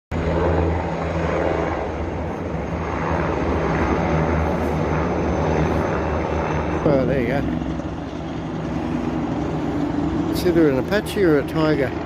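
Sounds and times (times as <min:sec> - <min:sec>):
helicopter turbine and rotor drone: 0:00.1 - 0:12.0.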